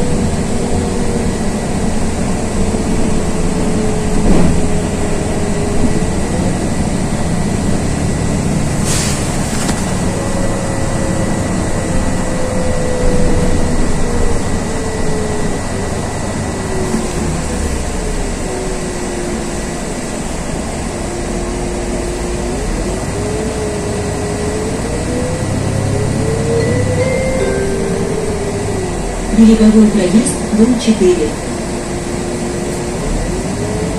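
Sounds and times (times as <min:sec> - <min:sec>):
bus road and engine noise: 0:00.0 - 0:33.9
rising and falling whine: 0:09.9 - 0:30.6.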